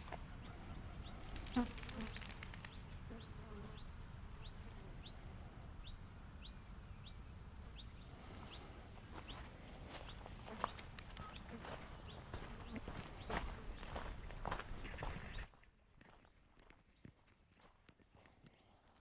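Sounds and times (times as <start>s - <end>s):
low outdoor hum: 0.0s - 19.0s
bird chirping: 5.8s - 15.6s.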